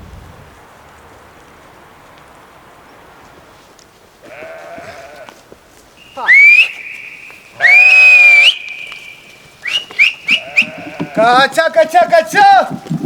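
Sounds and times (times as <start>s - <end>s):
goats bleating: 4.2s - 5.4s, 7.4s - 13.0s.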